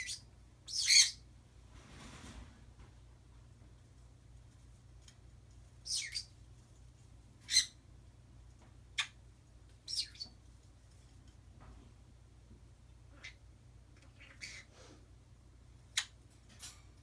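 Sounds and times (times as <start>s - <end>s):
birds chirping: 0.0s - 1.3s, 5.8s - 6.4s, 7.4s - 7.8s, 8.9s - 10.4s, 12.9s - 14.7s.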